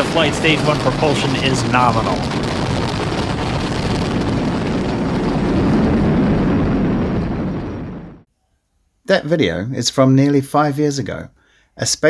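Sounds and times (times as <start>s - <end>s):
rocket engines roaring: 0.0s - 8.2s.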